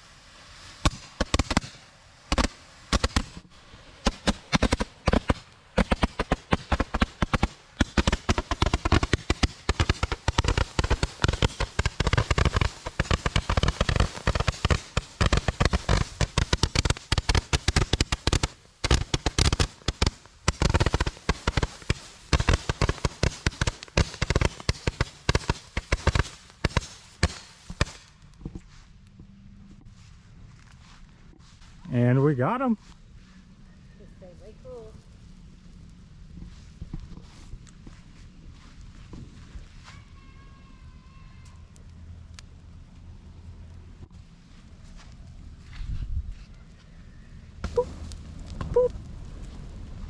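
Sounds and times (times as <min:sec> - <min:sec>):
firecrackers banging: 0:00.0 - 0:28.9.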